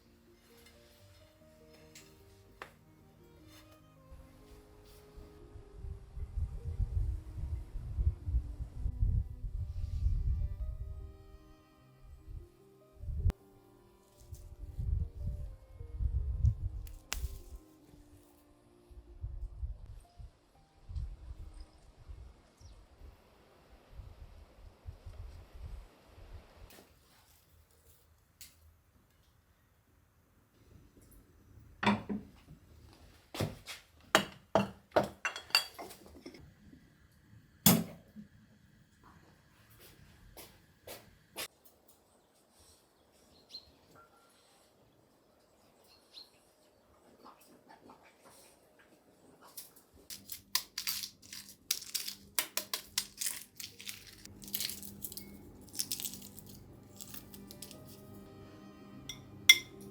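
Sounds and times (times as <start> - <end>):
dishes and utensils clinking: 34.2 - 36.4, 59.1 - 59.9
crisp crunching and clicking: 50.1 - 58.0.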